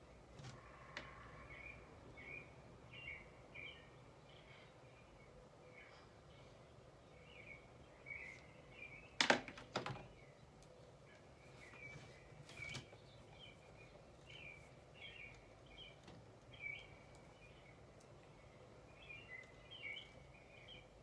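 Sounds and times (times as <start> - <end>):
small birds chirping: 0.1 - 9.2, 10.1 - 21.0.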